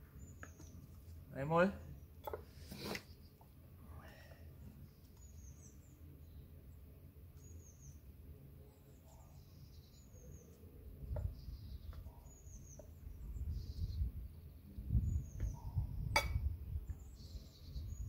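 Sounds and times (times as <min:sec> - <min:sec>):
bird chirping: 0:00.0 - 0:00.9, 0:04.8 - 0:06.8, 0:07.4 - 0:16.2, 0:16.9 - 0:18.0.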